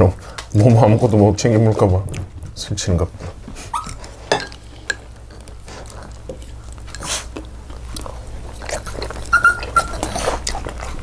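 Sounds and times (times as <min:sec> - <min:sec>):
dog whining: 0:03.7 - 0:04.1, 0:08.6 - 0:11.0
chewing and biting food: 0:05.0 - 0:11.0.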